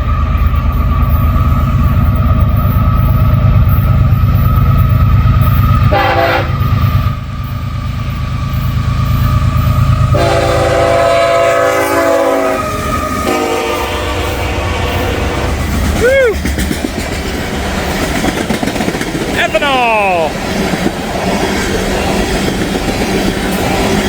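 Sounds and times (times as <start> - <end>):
freight train rumbling past: 0.0 - 24.0
locomotive horn blasts: 5.9 - 6.7, 10.1 - 15.6.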